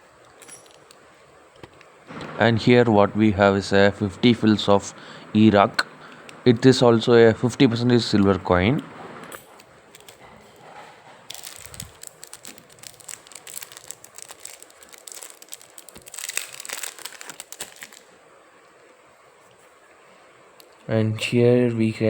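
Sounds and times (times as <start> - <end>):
packaging crinkling: 9.4 - 18.2.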